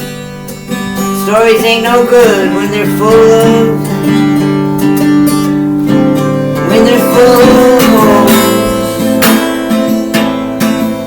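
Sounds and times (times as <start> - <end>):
acoustic guitar strummed: 0.0 - 11.0.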